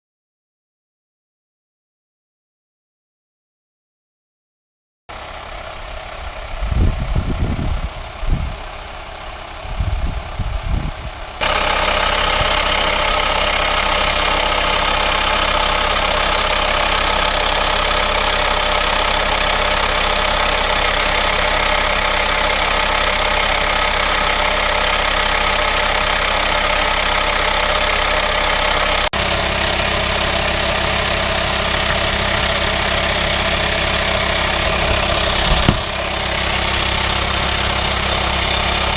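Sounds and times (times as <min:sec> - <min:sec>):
diesel engine idling: 0:05.1 - 0:38.9
hiss from engine bay: 0:11.4 - 0:29.0
low thumps: 0:34.6 - 0:36.1.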